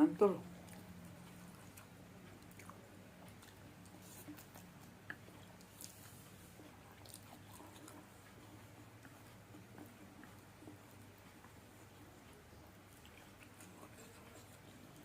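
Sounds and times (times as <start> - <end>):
room hum: 0.0 - 15.0
chewing noodles: 0.4 - 15.0.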